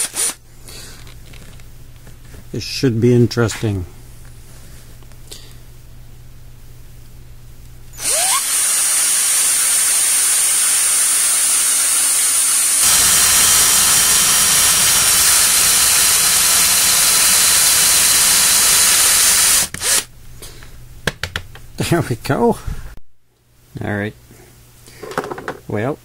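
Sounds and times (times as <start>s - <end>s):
power tool motor whining: 8.0s - 20.1s.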